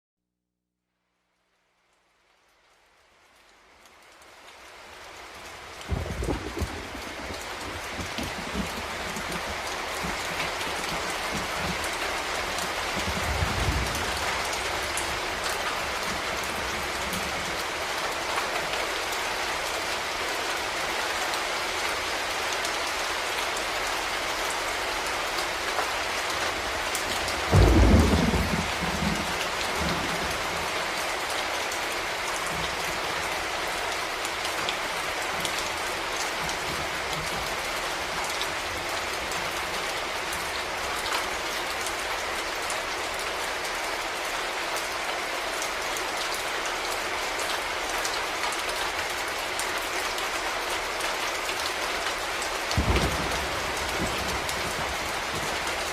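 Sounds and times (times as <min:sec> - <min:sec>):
heavy rain falling: 0:02.0 - 0:55.9
thunderclap: 0:05.9 - 0:11.8, 0:27.5 - 0:30.2, 0:52.8 - 0:55.6
low rumble of thunder: 0:05.9 - 0:11.9, 0:12.8 - 0:17.6, 0:27.4 - 0:30.7, 0:52.8 - 0:55.9.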